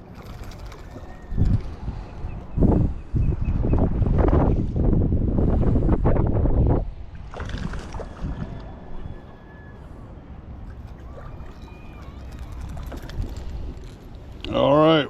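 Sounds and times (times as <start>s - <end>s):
faint water sloshing: 0.0s - 2.4s, 10.0s - 14.5s
wind rumbling on microphone: 0.0s - 15.0s.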